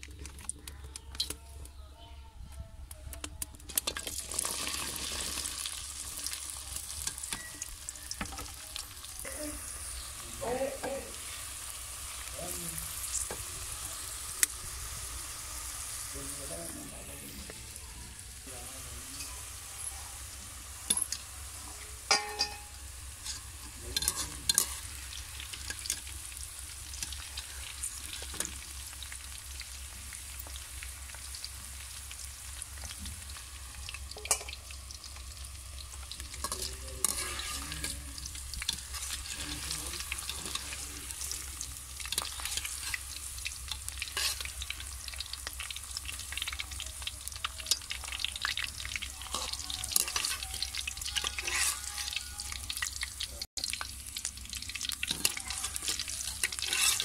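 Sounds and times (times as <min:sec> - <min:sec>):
okra sizzling in hot oil: 0:03.5 - 0:57.0
metal strainer scraping pan: 0:22.1 - 0:24.9, 0:36.4 - 0:38.0, 0:44.1 - 0:44.5, 0:51.1 - 0:52.2, 0:55.1 - 0:57.0.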